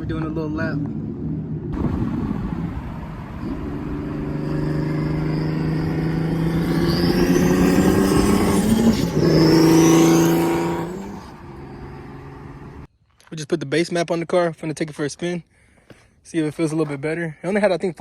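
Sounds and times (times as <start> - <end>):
high turbo whine: 0.0 - 12.9
car engine accelerating hard: 0.4 - 12.9.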